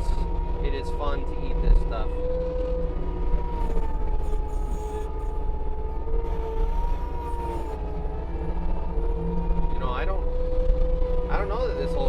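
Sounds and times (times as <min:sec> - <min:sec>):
diesel engine rumble: 0:00.0 - 0:12.0
high hydraulic whine: 0:03.4 - 0:08.2.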